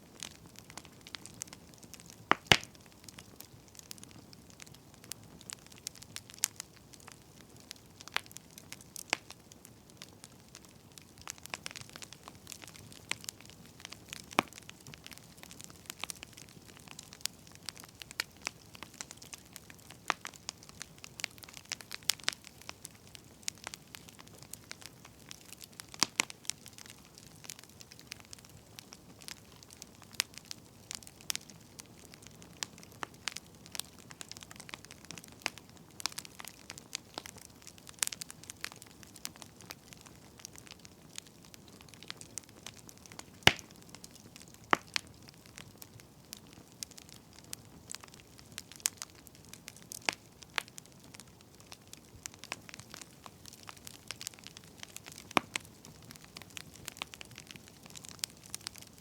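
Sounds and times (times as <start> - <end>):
firewood crackling and popping: 0.0 - 59.0.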